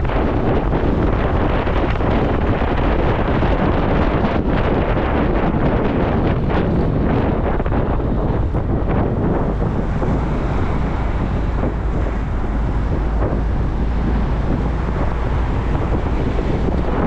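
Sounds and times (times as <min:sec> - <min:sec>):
motorcycle engine: 0:00.0 - 0:17.0
road noise: 0:00.0 - 0:17.0
wind rushing over microphone: 0:00.0 - 0:17.0.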